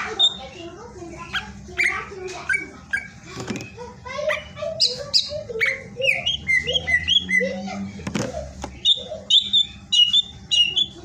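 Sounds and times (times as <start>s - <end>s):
bird singing whistled notes: 8.8s - 11.0s.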